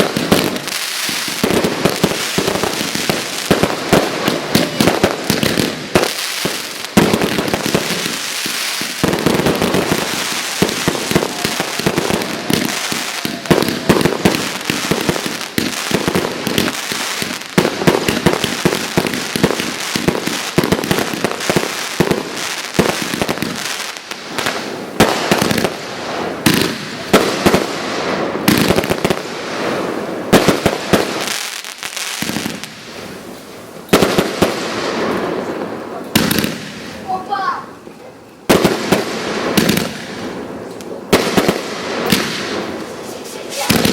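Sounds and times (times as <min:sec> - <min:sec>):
fireworks bangs and crackling: 0:00.0 - 0:43.9
fireworks launch thumps: 0:43.1 - 0:43.9.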